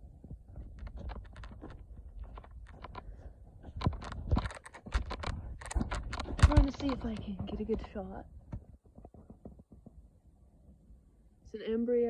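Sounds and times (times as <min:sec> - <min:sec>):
close clicks and knocks: 0:03.8 - 0:07.9.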